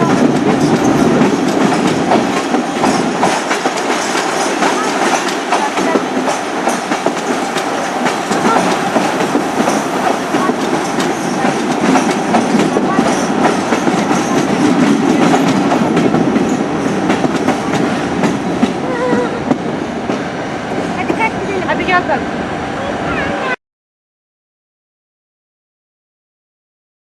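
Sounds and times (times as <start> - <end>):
train wheels clattering on rails: 0.0 - 22.0.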